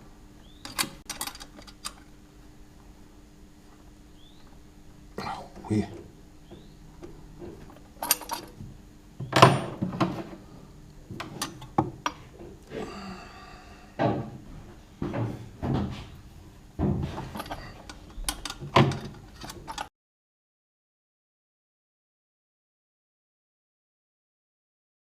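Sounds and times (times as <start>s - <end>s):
metallic clanks of tools: 8.0s - 8.6s, 17.0s - 19.9s.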